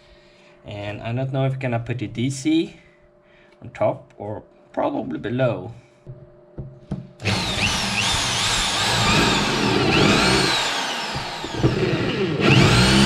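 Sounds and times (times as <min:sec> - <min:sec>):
power drill boring into wood: 0:07.2 - 0:13.0.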